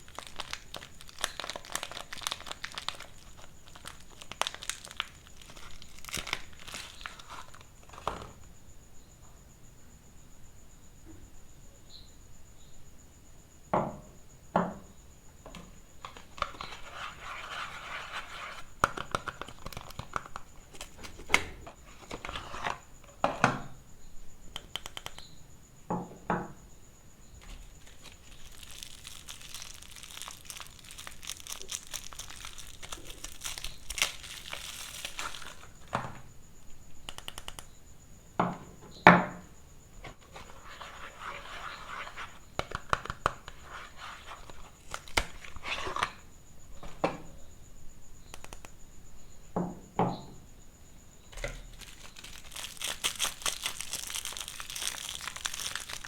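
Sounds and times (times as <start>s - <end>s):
wrappers crinkling and tearing: 0.0s - 8.1s, 19.0s - 21.3s, 27.4s - 35.9s, 44.2s - 46.0s, 51.7s - 56.0s.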